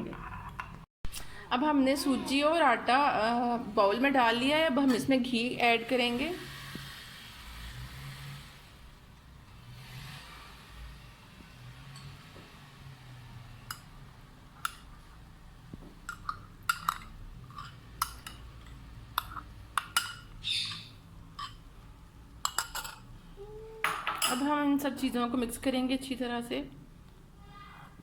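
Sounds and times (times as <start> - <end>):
spoon scraping against bowl: 16.0 - 21.7, 22.4 - 23.2.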